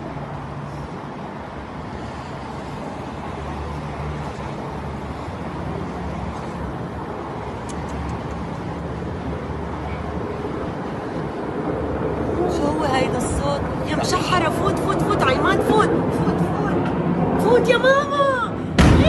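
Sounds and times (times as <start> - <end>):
low distant roar: 0.0 - 19.0.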